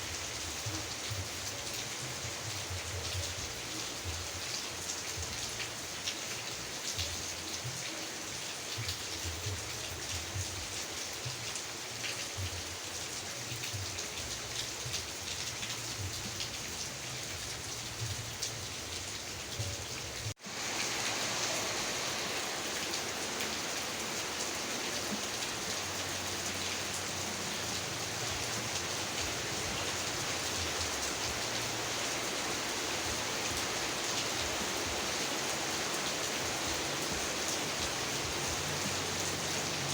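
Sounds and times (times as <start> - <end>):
raindrops pattering: 0.0 - 39.9
steady rain hiss: 0.0 - 39.9.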